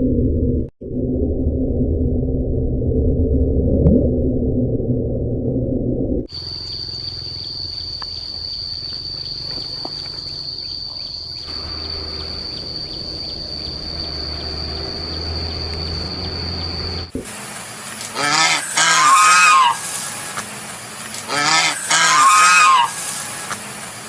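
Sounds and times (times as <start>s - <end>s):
high-pitched insect trill: 6.3s - 17.2s.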